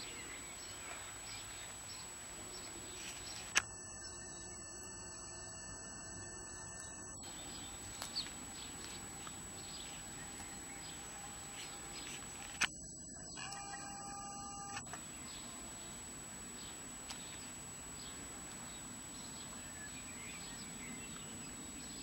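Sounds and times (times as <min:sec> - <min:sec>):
faint high whine: 0:00.0 - 0:22.0
small birds chirping: 0:00.0 - 0:22.0
sharp clicks: 0:03.0 - 0:03.7, 0:06.8 - 0:12.8, 0:13.4 - 0:15.4.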